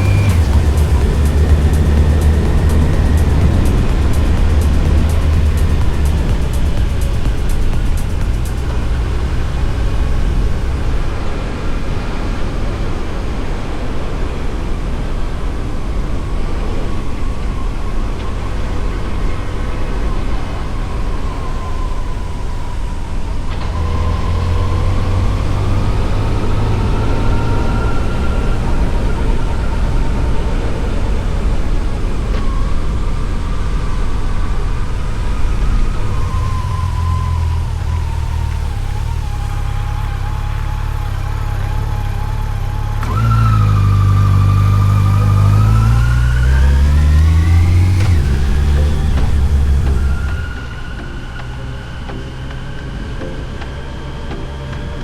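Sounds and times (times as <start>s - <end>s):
motorcycle engine running: 0.0s - 11.5s, 23.7s - 50.6s
wind and road noise: 0.0s - 55.0s.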